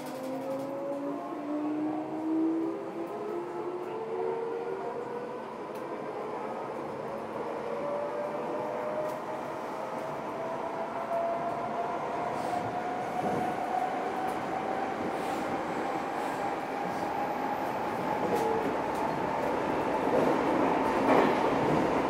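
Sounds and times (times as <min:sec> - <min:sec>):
clicks on rails: 0:00.0 - 0:01.1.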